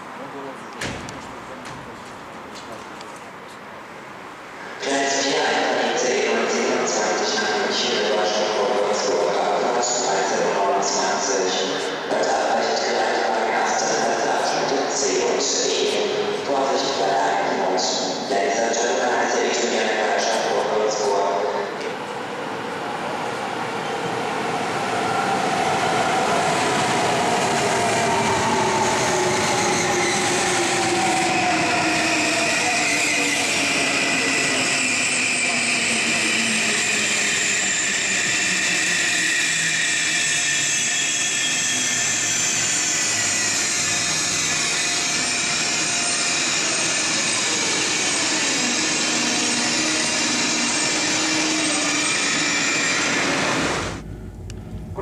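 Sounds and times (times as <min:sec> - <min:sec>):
electric train slowing: 0:18.0 - 0:55.0.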